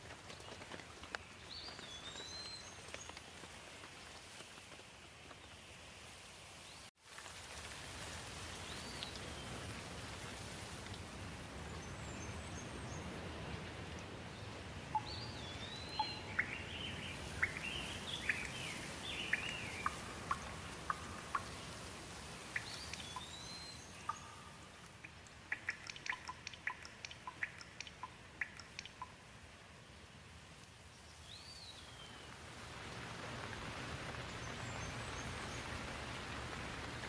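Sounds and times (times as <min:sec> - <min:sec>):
steady rain hiss: 0:00.0 - 0:37.0
sharp drips falling: 0:14.9 - 0:29.3
bird singing whistled notes: 0:15.0 - 0:20.5, 0:22.6 - 0:24.6.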